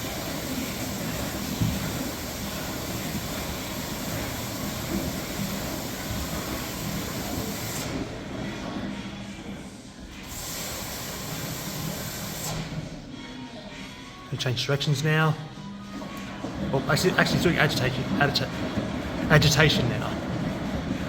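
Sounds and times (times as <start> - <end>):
water spraying into washing machine: 0.0 - 8.8, 10.2 - 13.0, 16.2 - 21.0.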